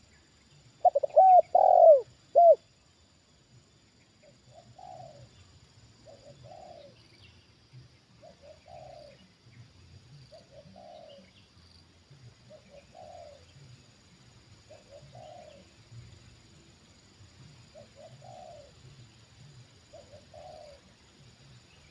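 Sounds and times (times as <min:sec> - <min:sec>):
dove cooing: 0:00.8 - 0:02.6, 0:04.2 - 0:05.4, 0:06.0 - 0:07.0, 0:08.2 - 0:09.3, 0:10.3 - 0:11.3, 0:12.5 - 0:13.7, 0:14.6 - 0:15.8, 0:17.6 - 0:18.9, 0:19.8 - 0:21.0
faint small bird chirps: 0:03.9 - 0:11.8, 0:14.6 - 0:16.3.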